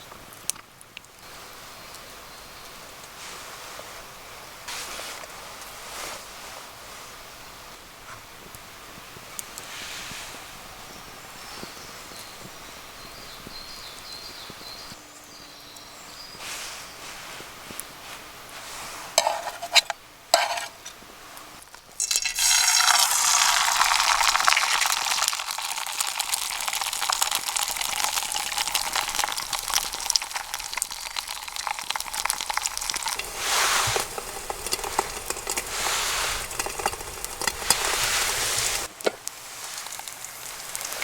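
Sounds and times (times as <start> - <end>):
food sizzling in a pan: 18.6 - 21.0, 21.8 - 41.0.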